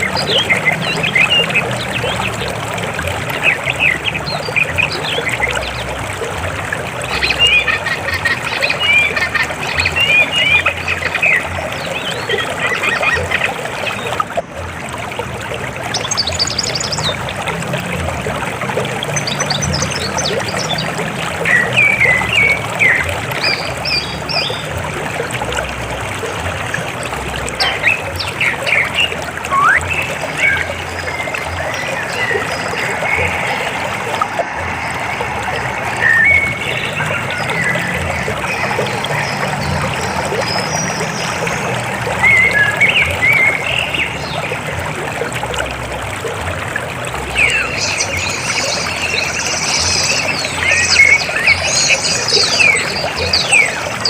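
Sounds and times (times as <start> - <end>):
birds chirping: 0.0 - 14.4, 27.1 - 44.8, 47.2 - 54.0
river water flowing over rocks: 0.0 - 54.0.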